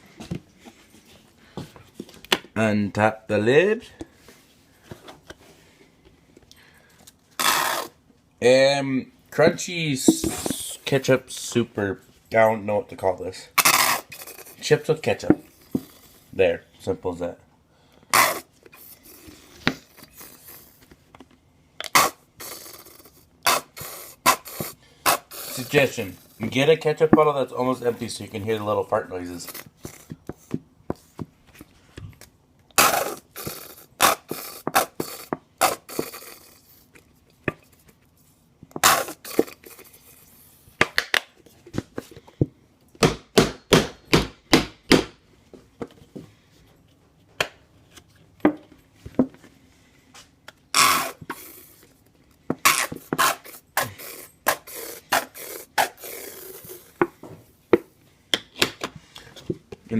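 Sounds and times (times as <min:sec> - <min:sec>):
squeeze bottle sputtering: 0:07.4 - 0:08.0, 0:13.6 - 0:14.6, 0:18.1 - 0:20.8, 0:21.8 - 0:26.4, 0:32.8 - 0:37.0, 0:38.8 - 0:40.5, 0:50.7 - 0:51.9, 0:52.6 - 0:57.0.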